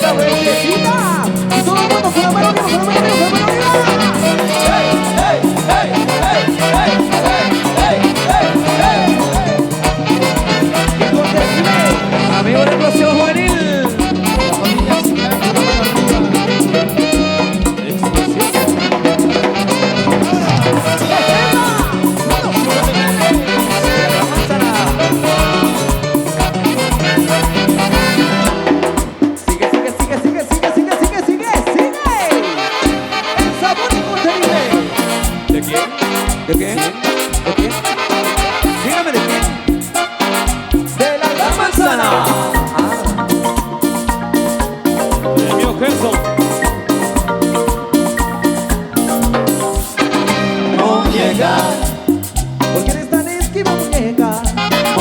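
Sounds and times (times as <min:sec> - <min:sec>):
latin dance music with brass: 0:00.0 - 0:55.0.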